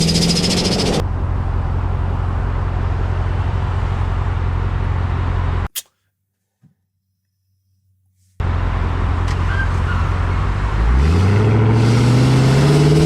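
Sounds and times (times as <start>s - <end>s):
engine low rumble: 0.0s - 5.7s, 8.2s - 13.0s
sharp click: 5.7s - 6.0s.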